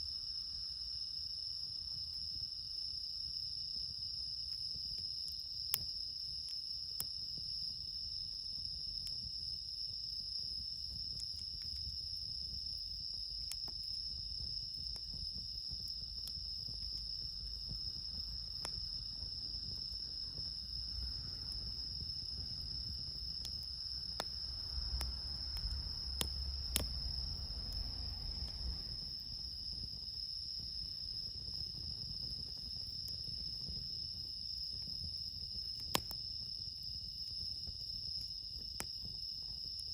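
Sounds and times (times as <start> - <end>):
crickets chirping: 0.0 - 39.9
campfire pops: 4.4 - 34.1, 34.7 - 36.4.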